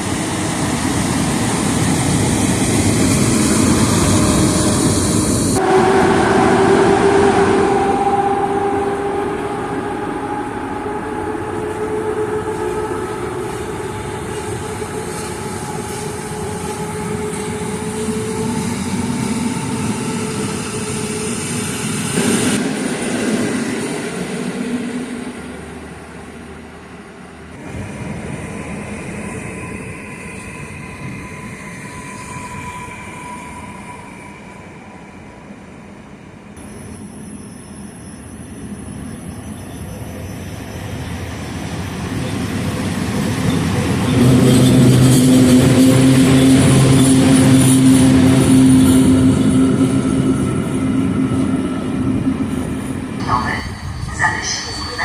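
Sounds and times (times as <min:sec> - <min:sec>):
train running on tracks: 0:00.0 - 0:55.0
two-note whine: 0:05.6 - 0:19.8.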